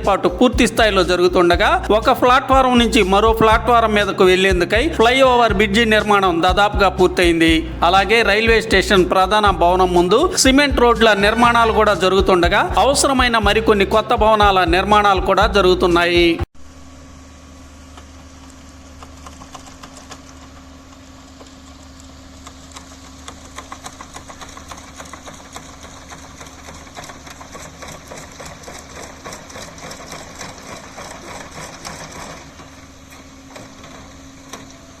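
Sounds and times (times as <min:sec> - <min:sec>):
machine humming: 0:00.0 - 0:35.0
rapid irregular clicking and clatter: 0:17.9 - 0:35.0.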